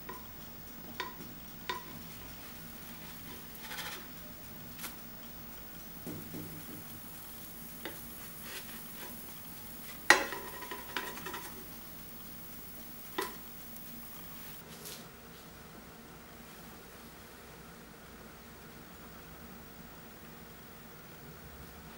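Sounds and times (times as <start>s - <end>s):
faint sizzle: 0.0s - 21.9s
spatula scraping frying pan: 0.9s - 4.3s, 6.5s - 14.5s.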